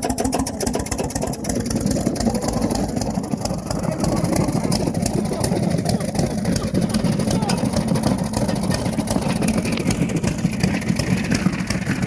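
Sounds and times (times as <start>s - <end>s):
engine running fast: 0.0s - 12.0s.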